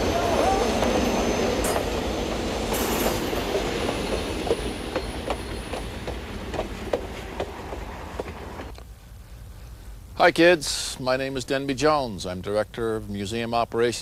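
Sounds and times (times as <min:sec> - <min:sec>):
train wheels clicking over rail joints: 0:00.0 - 0:08.8.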